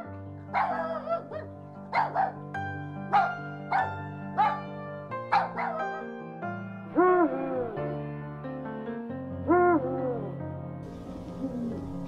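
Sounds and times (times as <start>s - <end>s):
background music with held chords: 0.0s - 12.0s
puppies yipping: 0.6s - 2.4s, 3.1s - 4.7s, 5.3s - 6.0s.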